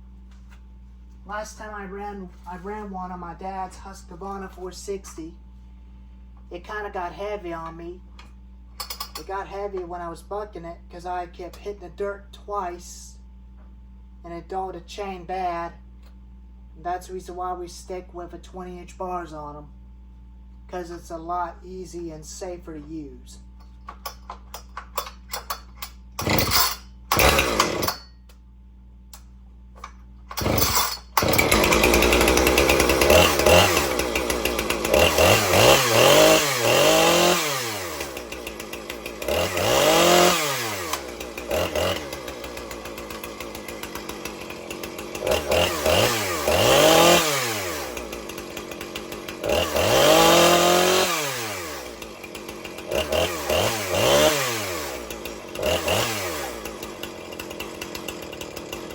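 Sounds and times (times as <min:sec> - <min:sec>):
chainsaw pull-starting: 0:08.8 - 0:09.4, 0:23.6 - 0:28.2, 0:29.2 - 0:58.9
chainsaw revving and idling: 0:25.0 - 0:28.1, 0:29.8 - 0:58.9.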